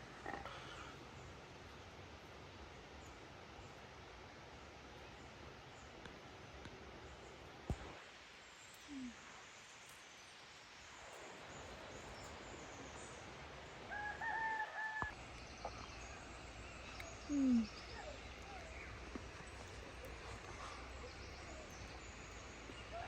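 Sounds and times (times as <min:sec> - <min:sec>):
rooster crowing: 0:13.9 - 0:15.2.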